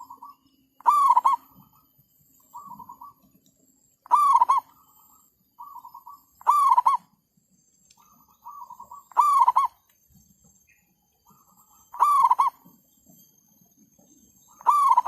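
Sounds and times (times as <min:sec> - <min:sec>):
dove cooing: 0:00.0 - 0:01.7, 0:02.5 - 0:03.2, 0:04.0 - 0:04.8, 0:05.6 - 0:07.1, 0:08.1 - 0:09.8, 0:11.3 - 0:12.7, 0:14.5 - 0:15.0.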